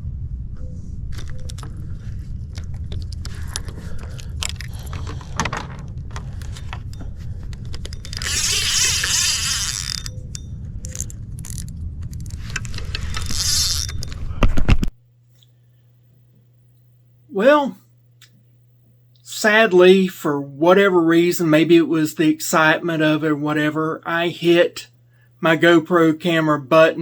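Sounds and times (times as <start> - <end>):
wind rumble on microphone: 0.0 - 14.9.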